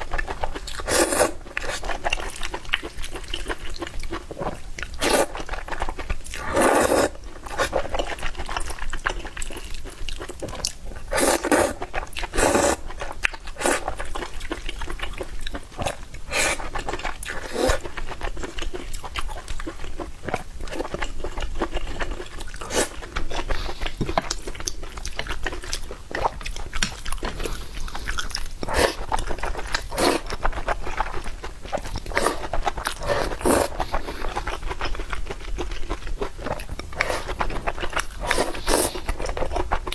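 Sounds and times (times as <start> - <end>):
wet chewing of noodles: 0.0 - 39.9
slurping noodles: 0.8 - 2.0, 5.0 - 5.5, 6.4 - 7.9, 11.1 - 12.9, 13.6 - 14.0, 16.3 - 18.0, 22.6 - 23.9, 27.5 - 30.7, 31.8 - 34.6, 36.6 - 39.4.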